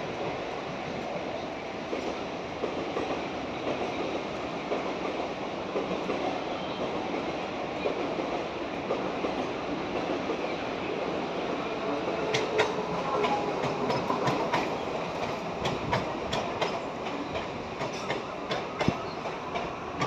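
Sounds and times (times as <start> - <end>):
train wheels rumbling on rails: 0.0 - 20.0
wheels clicking over rail joints: 12.1 - 20.0.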